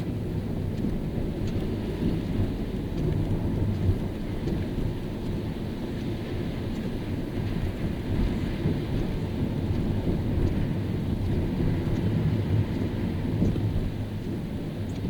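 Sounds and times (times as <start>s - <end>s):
tyres rumbling on road: 0.0s - 15.0s.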